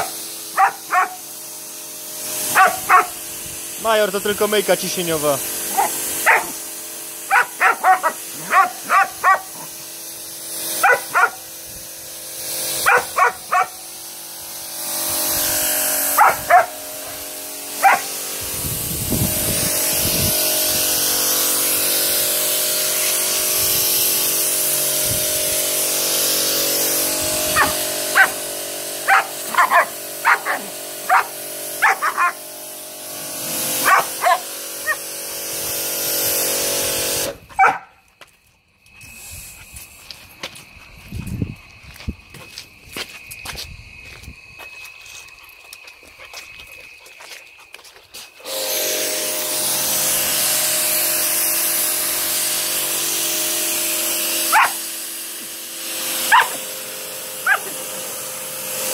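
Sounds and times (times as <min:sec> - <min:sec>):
dog barking: 0:00.0 - 0:01.2, 0:02.5 - 0:03.2, 0:05.7 - 0:06.6, 0:07.3 - 0:09.7, 0:10.8 - 0:11.4, 0:12.8 - 0:13.8, 0:16.2 - 0:16.8, 0:17.8 - 0:18.1, 0:27.5 - 0:28.4, 0:29.1 - 0:32.4, 0:33.8 - 0:35.0, 0:37.6 - 0:38.0, 0:54.5 - 0:54.8, 0:56.3 - 0:56.6, 0:57.4 - 0:57.8
pressure washer hum and spray hiss: 0:00.0 - 0:37.5, 0:38.9 - 0:40.6, 0:48.0 - 0:58.9.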